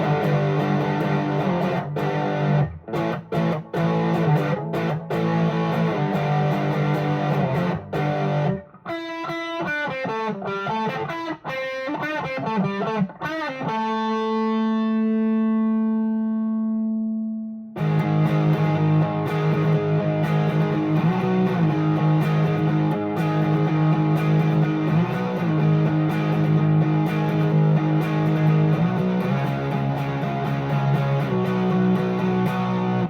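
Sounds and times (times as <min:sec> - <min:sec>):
overdriven electric guitar riff: 0:00.0 - 0:33.0.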